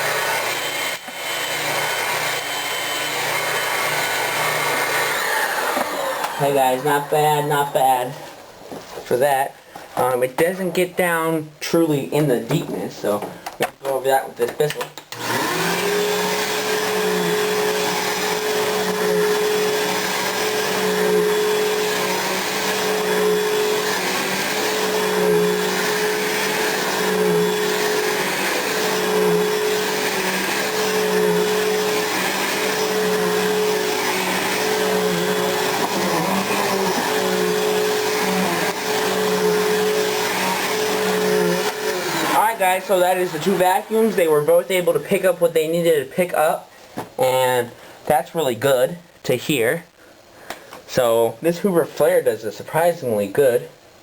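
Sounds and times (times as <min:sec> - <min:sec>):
vacuum cleaner running over carpet: 0:00.0 - 0:07.4, 0:15.2 - 0:44.1.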